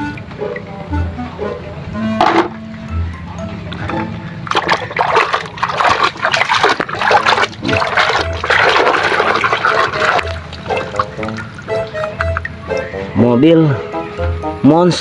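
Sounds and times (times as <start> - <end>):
water splashing and running: 4.4 - 12.9.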